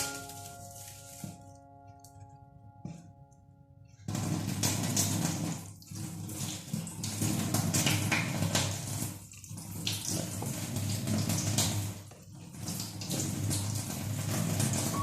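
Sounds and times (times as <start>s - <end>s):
tap water running into sink: 4.0s - 15.0s.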